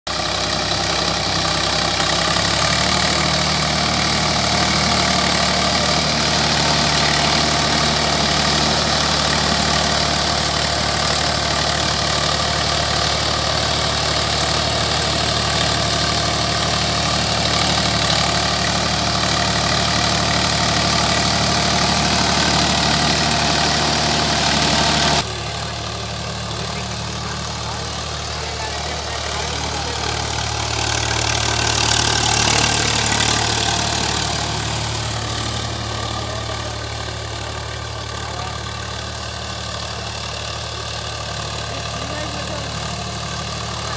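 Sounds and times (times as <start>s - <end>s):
tractor engine idling: 0.0s - 43.9s.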